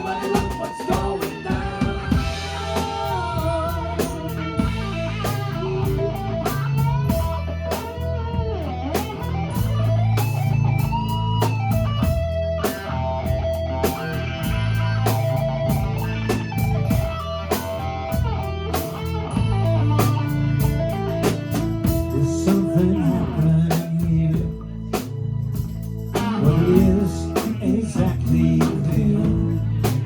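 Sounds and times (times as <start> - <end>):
bass line: 0.0 - 30.0
drums: 0.0 - 30.0
electric guitar lead: 0.0 - 30.0.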